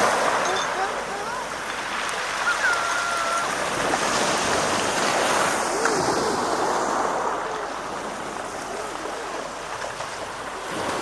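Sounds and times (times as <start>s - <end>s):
sea waves washing ashore: 0.0s - 11.0s
faint high calls: 2.3s - 3.7s.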